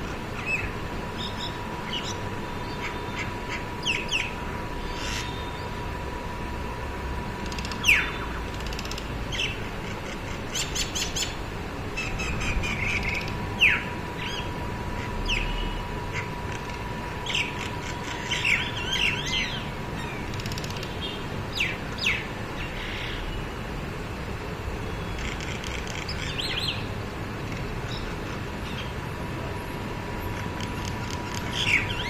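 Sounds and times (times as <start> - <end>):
birds squabbling and chirping: 0.0 - 5.8, 7.5 - 23.4, 25.0 - 29.1, 30.1 - 32.0.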